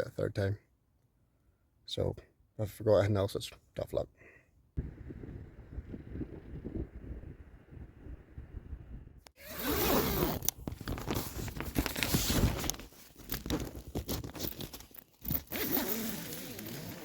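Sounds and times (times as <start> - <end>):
tent fabric rustling: 9.4 - 17.0
zips being pulled: 9.4 - 17.0.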